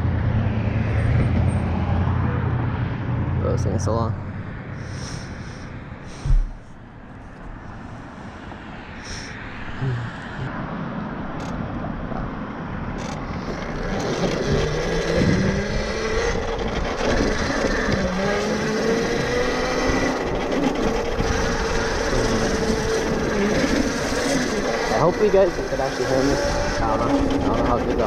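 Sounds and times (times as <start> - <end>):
rushing wind noise: 4.2 - 28.0
electric motorbike motor whining: 13.0 - 28.0.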